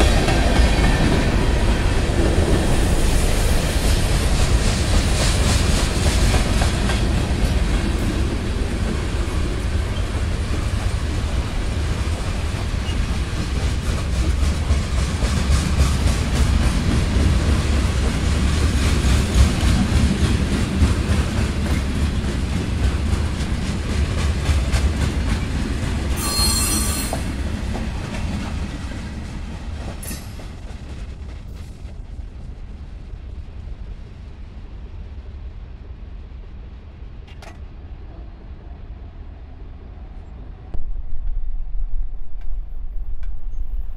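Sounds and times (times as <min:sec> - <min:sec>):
train wheels rumbling on rails: 0:00.0 - 0:43.9
high wheel squeal: 0:26.2 - 0:27.2.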